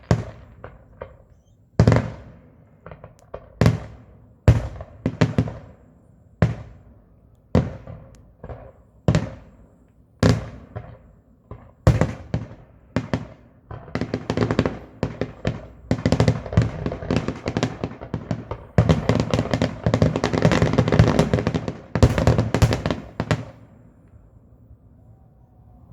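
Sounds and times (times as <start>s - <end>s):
rapid firework bangs and crackle: 0.0s - 23.7s
firework shells bursting: 10.4s - 23.7s.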